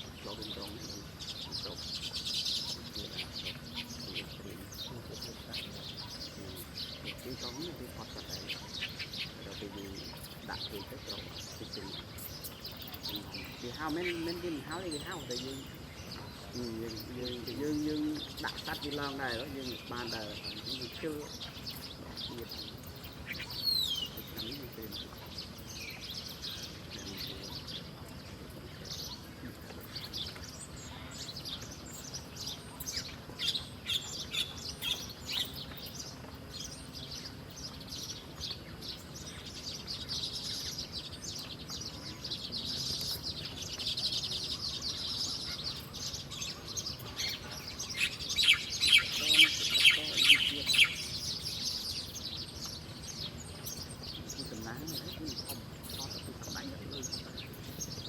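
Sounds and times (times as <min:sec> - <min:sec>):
small birds chirping: 0:00.0 - 0:58.0
bird trilling: 0:36.8 - 0:56.7.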